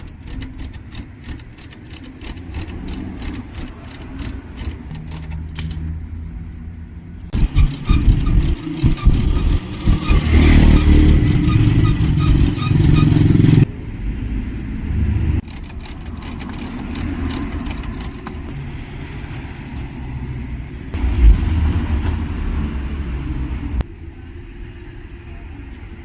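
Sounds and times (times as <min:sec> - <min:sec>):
quick clicks: 0:00.0 - 0:05.9, 0:15.4 - 0:18.5
low engine rumble: 0:00.0 - 0:18.8, 0:19.5 - 0:26.0.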